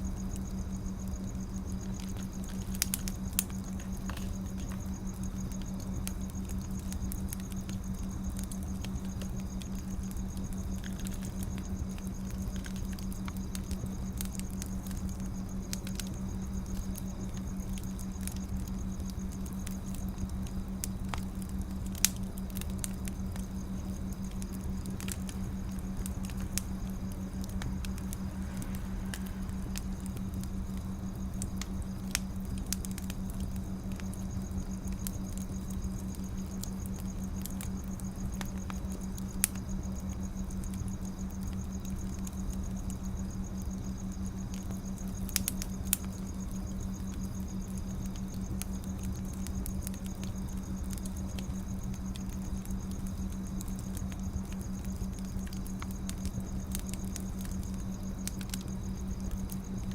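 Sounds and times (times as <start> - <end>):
firewood crackling and popping: 0.0 - 59.9
low hum: 21.4 - 34.2.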